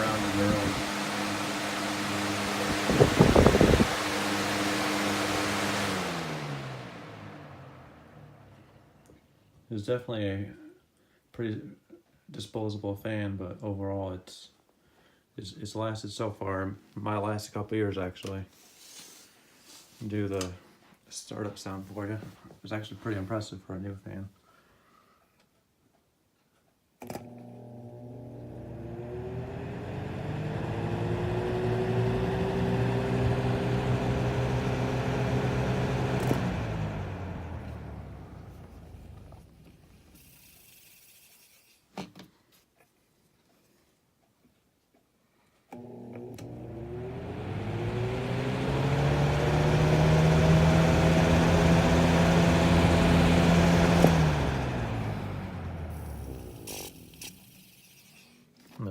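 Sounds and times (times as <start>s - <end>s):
rush of air from fan: 0.0s - 7.5s
fan motor whine: 0.0s - 8.8s, 27.6s - 41.5s, 45.8s - 58.3s
fan air rushing: 0.0s - 8.9s, 46.8s - 58.0s.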